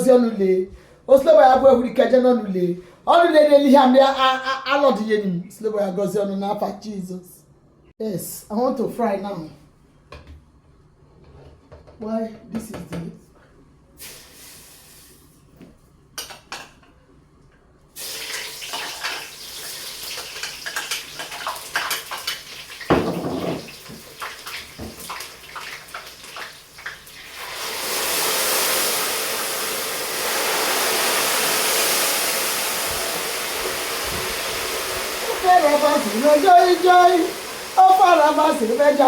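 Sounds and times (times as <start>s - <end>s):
food sizzling in hot oil: 14.0s - 15.2s, 18.0s - 39.0s
pot or utensil clatter: 22.9s - 23.8s.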